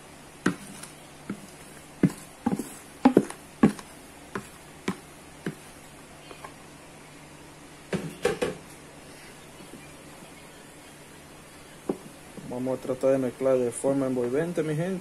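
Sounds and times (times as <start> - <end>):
wooden spoon knocking on bowls: 0.4 - 5.7.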